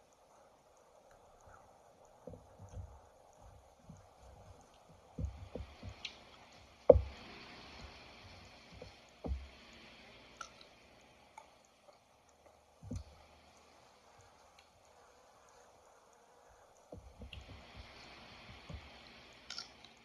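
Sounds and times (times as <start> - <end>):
dull thumps: 2.2 - 9.8, 12.8 - 13.3, 16.9 - 19.1.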